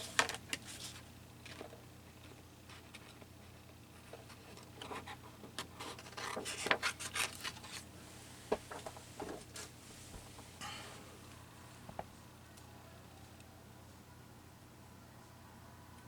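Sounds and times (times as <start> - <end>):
paper rustling: 4.1 - 10.5.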